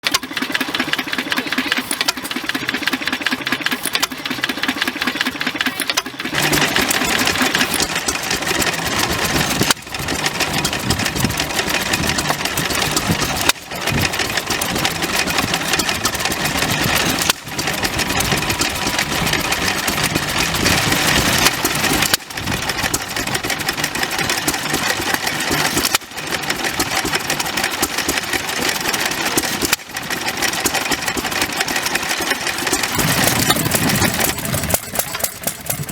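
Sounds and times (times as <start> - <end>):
stationary engines running: 0.0 - 35.9.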